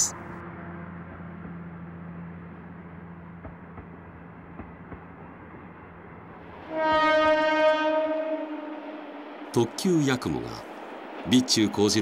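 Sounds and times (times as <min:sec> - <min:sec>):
electric train humming and rumbling: 0:00.0 - 0:12.0
loud train horn: 0:06.6 - 0:09.4.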